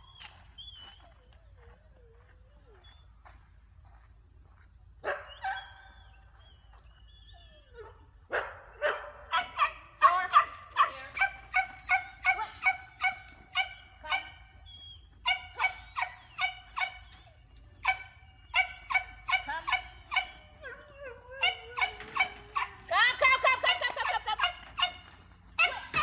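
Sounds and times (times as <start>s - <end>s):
dog barking high-pitched: 8.3s - 14.4s, 15.2s - 17.1s, 17.8s - 20.6s, 21.4s - 25.0s, 25.6s - 26.0s.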